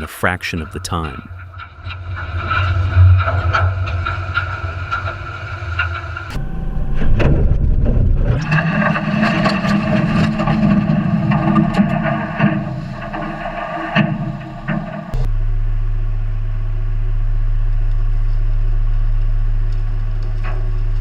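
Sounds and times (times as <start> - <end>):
boat engine running: 0.9 - 15.3.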